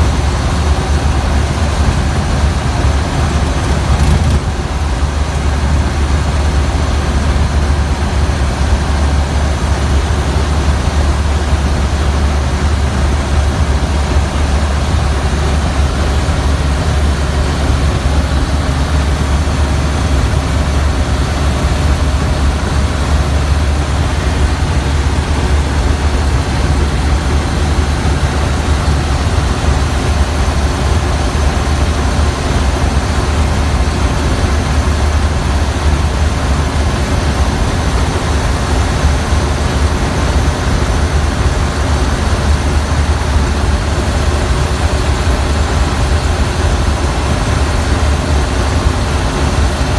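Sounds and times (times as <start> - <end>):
truck engine droning: 0.0 - 49.9.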